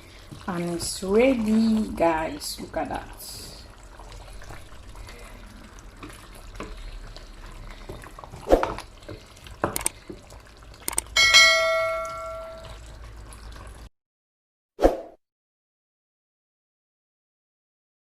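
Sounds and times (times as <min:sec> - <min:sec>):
loud ringing metal clang: 0:11.2 - 0:12.6.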